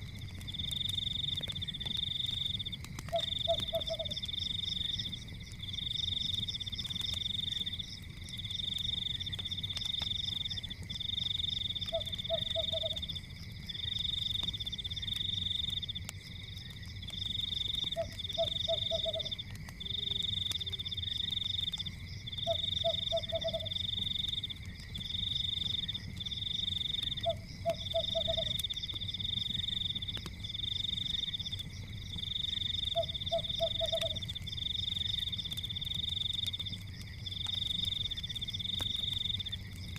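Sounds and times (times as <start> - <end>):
frogs trilling: 0.0 - 39.9
wood fire crackling: 0.0 - 39.9
low frog call: 3.1 - 4.2, 11.9 - 13.1, 17.9 - 20.9, 22.4 - 23.8, 27.1 - 28.6, 32.9 - 34.4.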